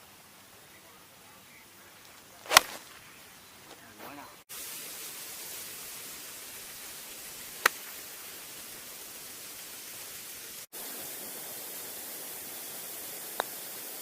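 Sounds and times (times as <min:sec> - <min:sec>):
outdoor background hiss: 0:00.0 - 0:14.0
golf club striking ball: 0:02.4 - 0:02.9.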